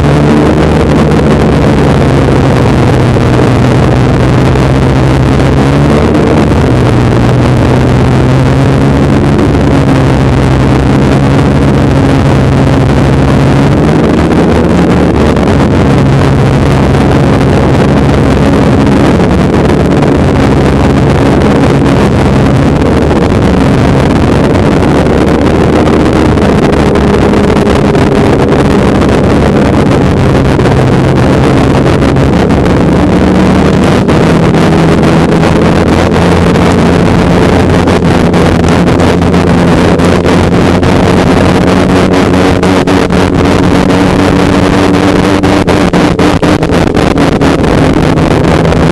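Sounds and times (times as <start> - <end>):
snowmobile engine running: 0.0 - 48.9.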